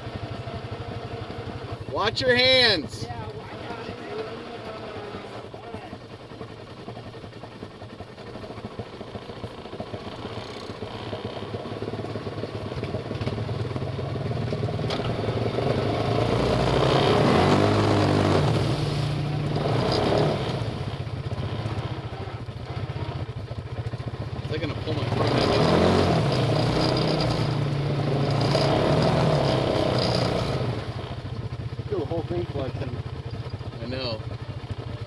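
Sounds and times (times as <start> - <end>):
atv engine revving under load: 0.0 - 35.0.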